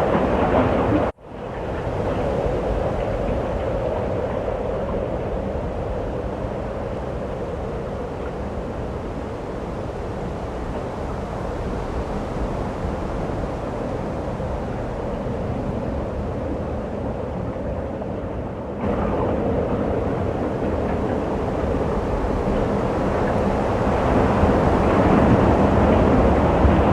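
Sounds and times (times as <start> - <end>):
wind rushing: 18.8 - 26.9.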